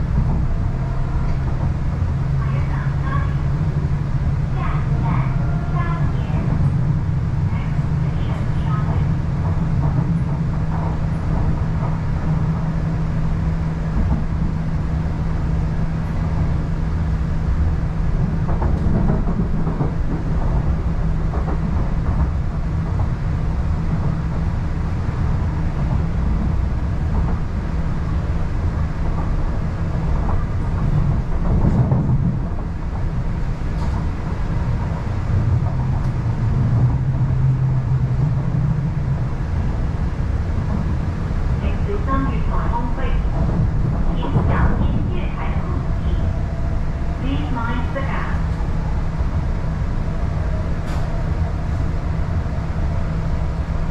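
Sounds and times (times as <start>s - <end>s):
train running rumble: 0.0s - 53.9s.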